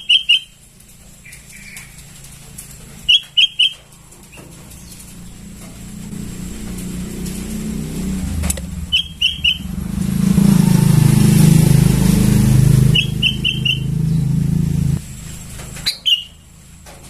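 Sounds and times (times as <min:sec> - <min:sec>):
bird chirping: 0:00.0 - 0:00.6, 0:01.2 - 0:02.0, 0:03.1 - 0:05.6, 0:08.7 - 0:10.6, 0:12.0 - 0:14.6, 0:15.8 - 0:16.4
vehicle engine running: 0:00.0 - 0:17.0.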